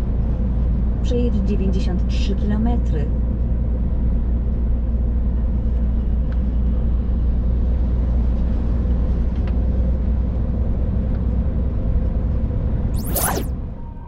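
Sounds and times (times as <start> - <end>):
truck engine and road rumble: 0.0 - 12.9.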